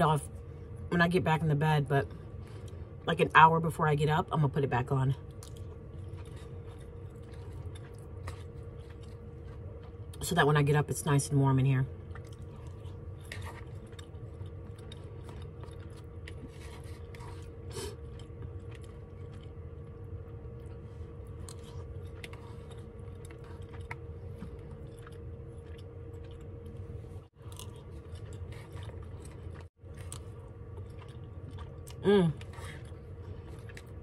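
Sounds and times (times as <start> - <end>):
person chewing: 5.2 - 10.2, 12.0 - 34.0.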